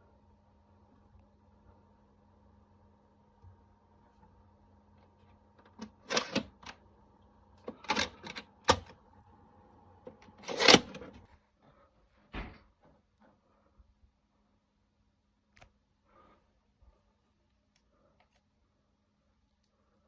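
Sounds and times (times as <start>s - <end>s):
packaging scraping: 10.3s - 11.2s.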